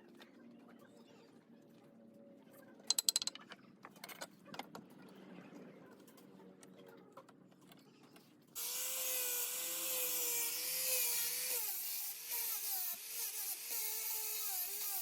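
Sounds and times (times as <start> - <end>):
power tool whining cutting wood: 8.6 - 15.0.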